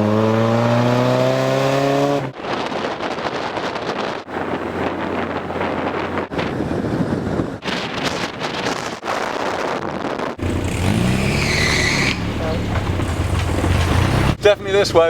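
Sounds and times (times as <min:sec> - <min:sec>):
car engine: 0:00.0 - 0:02.4, 0:10.4 - 0:15.0
road noise: 0:00.0 - 0:08.9, 0:10.1 - 0:15.0
wind buffeting microphone: 0:00.0 - 0:15.0.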